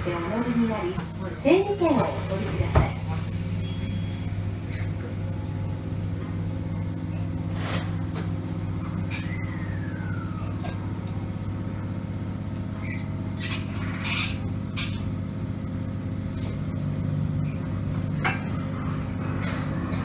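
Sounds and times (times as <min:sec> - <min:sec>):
electric train equipment humming: 0:00.0 - 0:20.0
brief falling tone: 0:03.6 - 0:04.9, 0:09.1 - 0:11.0.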